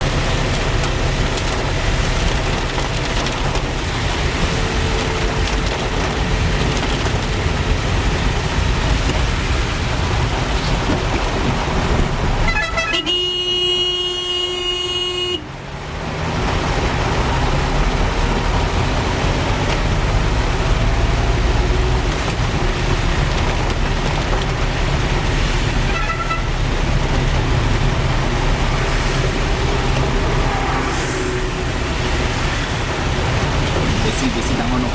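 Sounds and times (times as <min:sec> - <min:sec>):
road traffic rumble: 0:00.0 - 0:34.9
vehicle horn beeping: 0:12.4 - 0:15.5, 0:25.9 - 0:26.6.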